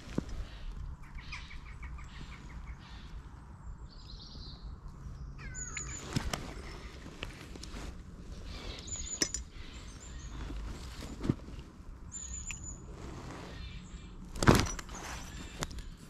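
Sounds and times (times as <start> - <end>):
high bird calls: 0.1 - 7.5, 8.3 - 11.2, 12.1 - 14.3.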